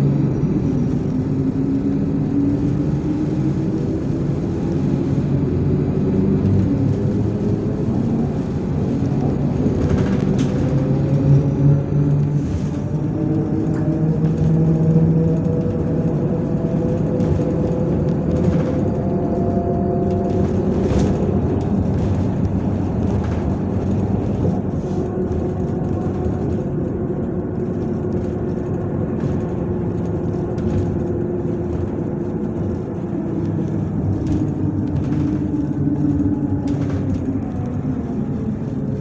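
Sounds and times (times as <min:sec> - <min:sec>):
bus engine and road noise: 0:00.0 - 0:39.0.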